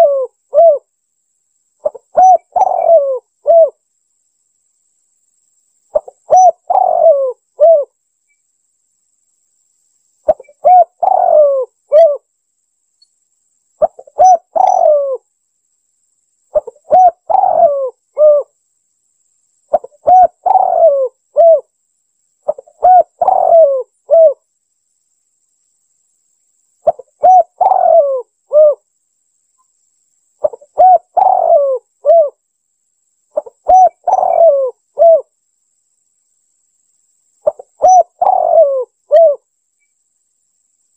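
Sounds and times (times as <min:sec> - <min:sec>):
dove cooing: 0:00.0 - 0:00.9, 0:01.8 - 0:03.8, 0:05.9 - 0:07.9, 0:10.3 - 0:12.3, 0:13.8 - 0:15.2, 0:16.5 - 0:18.6, 0:19.7 - 0:21.7, 0:22.4 - 0:24.4, 0:26.8 - 0:28.8, 0:30.4 - 0:32.4, 0:33.4 - 0:35.3, 0:37.4 - 0:39.5.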